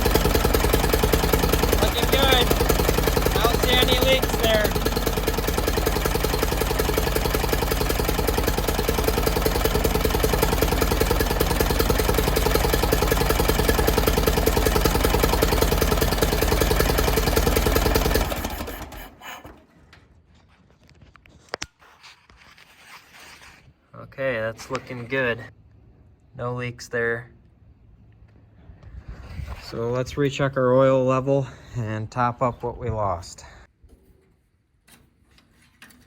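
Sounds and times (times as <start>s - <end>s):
engine idling and shutting off: 0.0s - 20.2s.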